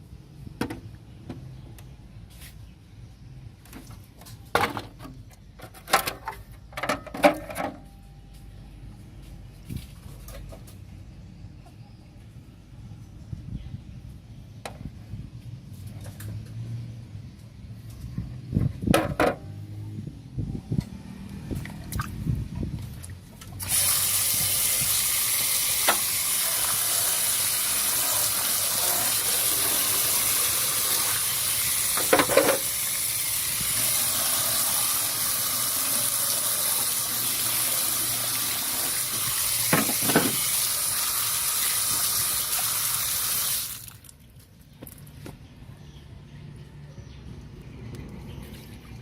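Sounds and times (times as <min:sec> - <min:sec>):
loud hiss: 0:23.6 - 0:43.8.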